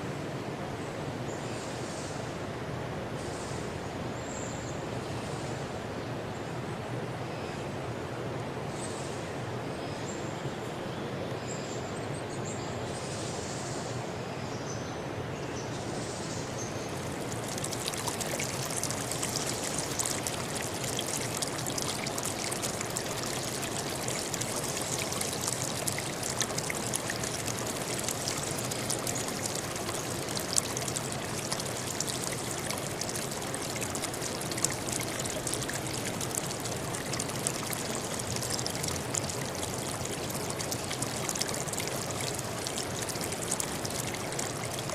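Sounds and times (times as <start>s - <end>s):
stream flowing over rocks: 16.8s - 44.9s.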